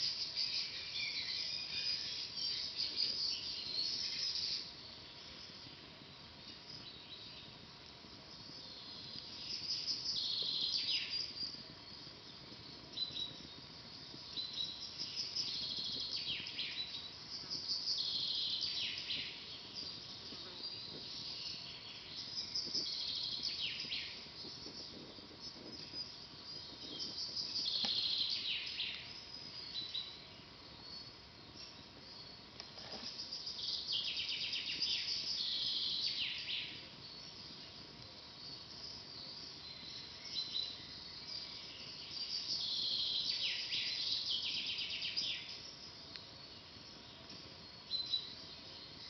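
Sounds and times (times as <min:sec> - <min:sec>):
songbird singing: 0:00.0 - 0:49.0
campfire crackling: 0:04.0 - 0:10.3, 0:11.1 - 0:17.9, 0:18.6 - 0:33.9, 0:36.6 - 0:39.6.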